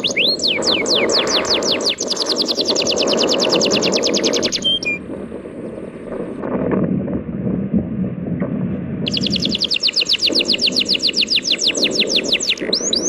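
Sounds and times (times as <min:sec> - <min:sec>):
bird trilling: 0:00.0 - 0:05.0, 0:09.1 - 0:13.0
short bird whistles: 0:00.0 - 0:05.0, 0:09.1 - 0:13.0.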